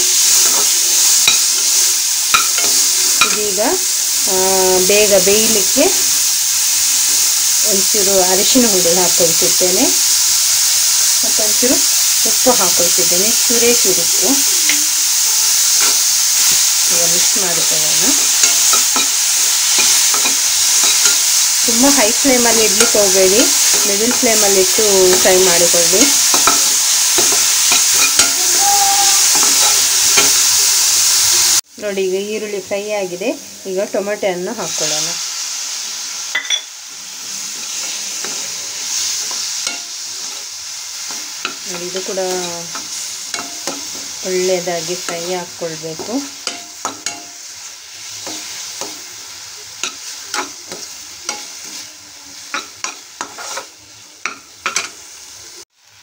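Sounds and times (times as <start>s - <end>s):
onions sizzling in a pan: 0.0s - 56.0s
metal spoon scraping a pan: 0.3s - 3.5s, 13.6s - 28.5s, 37.5s - 49.2s, 49.8s - 55.0s.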